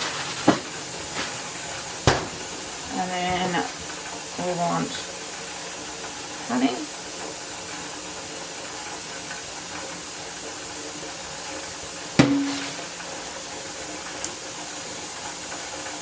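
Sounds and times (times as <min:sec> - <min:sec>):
steady background hiss: 0:00.0 - 0:16.0
container knocking on bench: 0:12.2 - 0:12.8
short ringing tone: 0:12.2 - 0:12.8.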